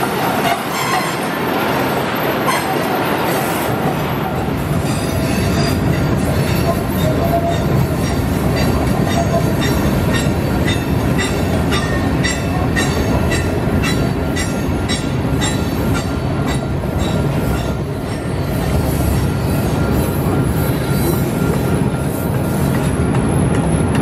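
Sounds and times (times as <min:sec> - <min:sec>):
freight cars rumbling on rail: 0:00.0 - 0:24.0
high wheel squeal: 0:04.8 - 0:16.1.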